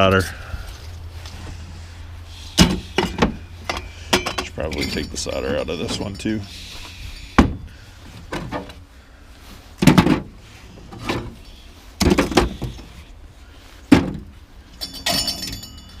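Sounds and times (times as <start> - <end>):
scrap metal clanking: 2.3 - 8.8
metallic jingling: 2.9 - 7.7, 14.7 - 16.0.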